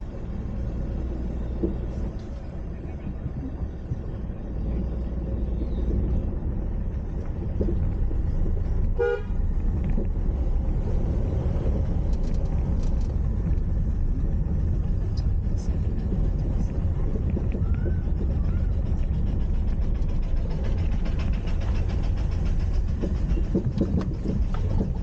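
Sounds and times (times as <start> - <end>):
car driving rumble: 0.0 - 25.0
vehicle horn toot: 9.0 - 9.4.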